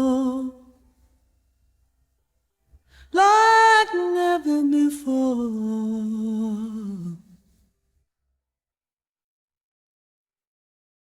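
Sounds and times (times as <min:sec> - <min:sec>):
woman singing unaccompanied: 0:00.0 - 0:00.8, 0:03.1 - 0:07.4.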